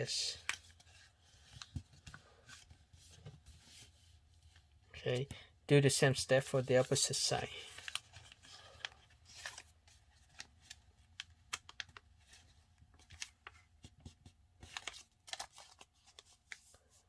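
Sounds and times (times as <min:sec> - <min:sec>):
paper rustling: 0:06.5 - 0:17.0.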